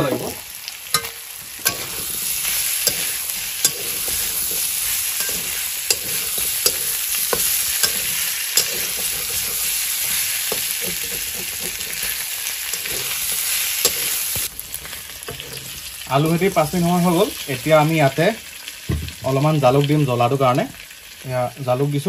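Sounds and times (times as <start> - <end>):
food sizzling in oil: 0.0 - 22.0
metal spatula scraping pan: 0.9 - 16.0.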